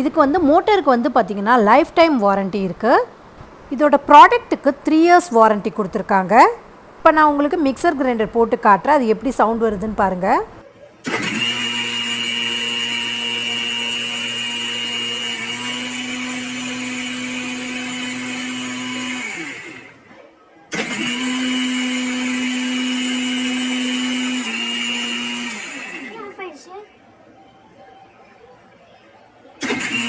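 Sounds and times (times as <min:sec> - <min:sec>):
mixer grinder motor whine: 0:09.4 - 0:26.4, 0:29.6 - 0:30.0.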